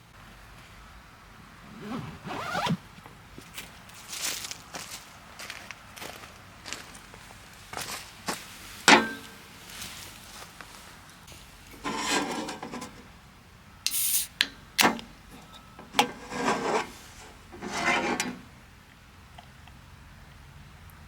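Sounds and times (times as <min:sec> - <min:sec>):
brief hiss: 0:13.8 - 0:14.4.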